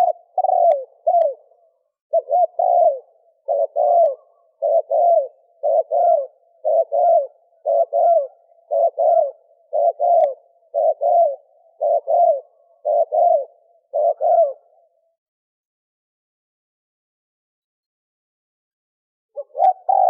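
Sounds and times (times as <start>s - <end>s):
dove cooing: 0.0s - 15.2s, 19.4s - 20.0s.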